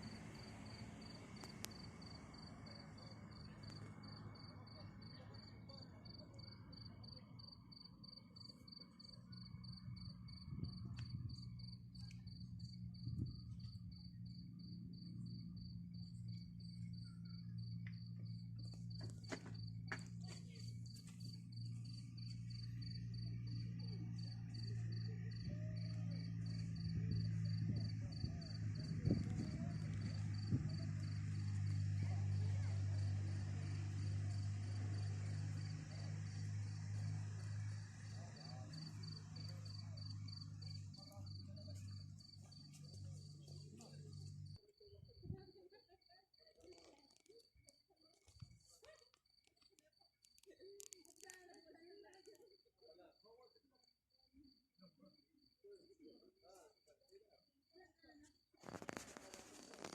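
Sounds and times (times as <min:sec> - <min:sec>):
cricket trilling: 0:00.0 - 0:20.1, 0:20.8 - 0:44.6
low hum: 0:00.0 - 0:44.6.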